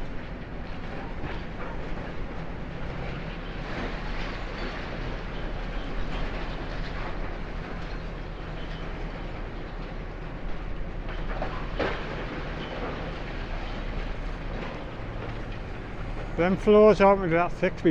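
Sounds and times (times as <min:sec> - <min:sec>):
excavator diesel engine: 0:00.0 - 0:17.9
concrete crunching and clatter: 0:00.3 - 0:17.9.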